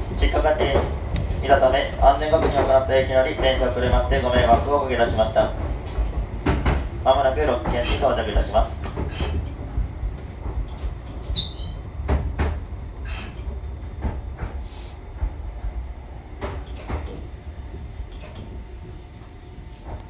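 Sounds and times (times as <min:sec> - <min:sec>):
train rumbling: 0:00.0 - 0:20.0
wheels clacking and knocking: 0:00.6 - 0:04.8.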